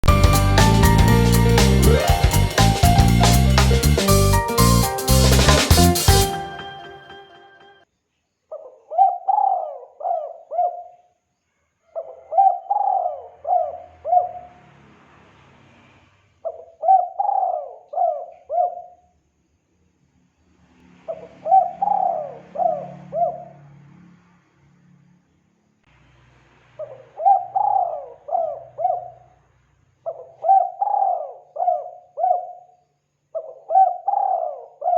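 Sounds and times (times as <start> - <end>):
dove cooing: 8.9 - 10.9, 12.0 - 14.3, 16.8 - 18.9, 21.4 - 23.4, 26.8 - 29.2, 30.1 - 32.6, 33.4 - 34.9.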